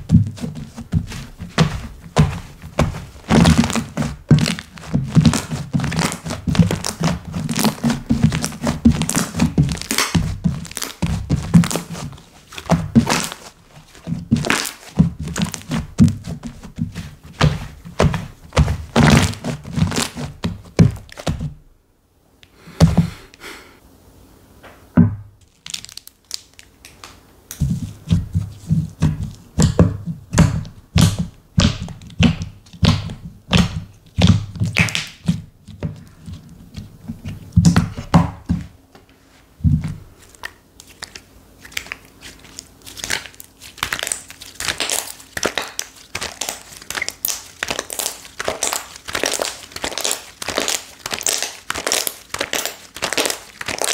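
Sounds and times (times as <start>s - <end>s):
slime crackling: 0.0s - 21.5s, 25.4s - 27.1s, 27.7s - 35.3s, 40.2s - 53.9s
slime squelching: 0.0s - 21.5s, 39.7s - 53.9s.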